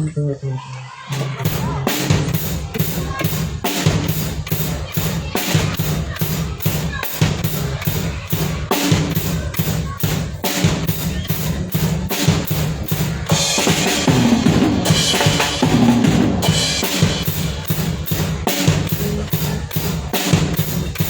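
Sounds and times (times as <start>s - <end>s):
drum kit beat: 1.1s - 21.0s
bass guitar line: 10.9s - 21.0s.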